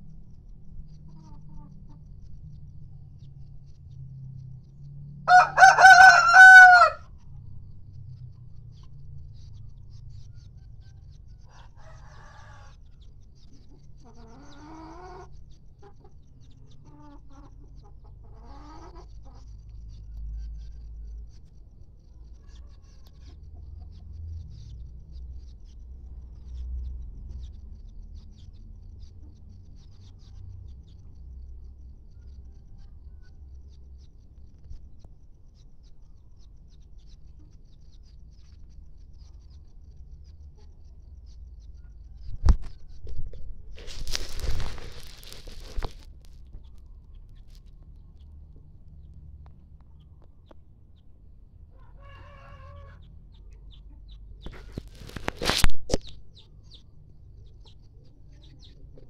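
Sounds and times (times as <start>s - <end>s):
faint chicken clucks: 0.0s - 59.0s
rooster crowing: 5.3s - 7.1s, 11.5s - 12.7s, 51.8s - 53.0s.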